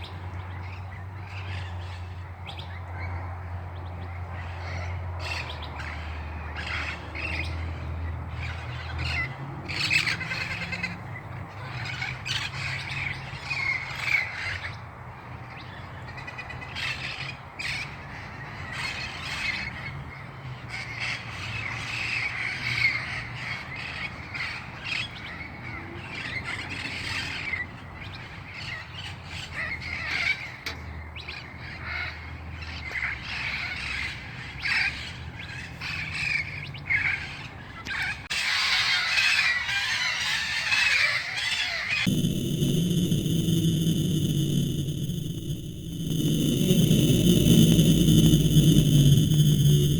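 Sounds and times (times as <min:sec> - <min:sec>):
low hum: 0:42.1 - 0:49.9.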